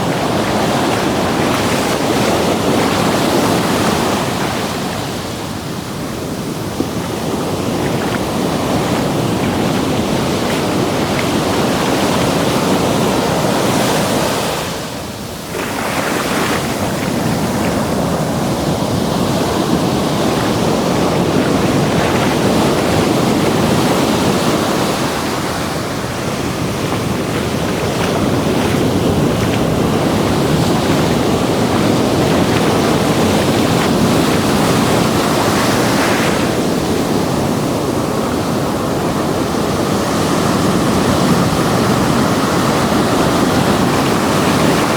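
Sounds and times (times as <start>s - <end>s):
waves breaking on beach: 0.0s - 44.9s.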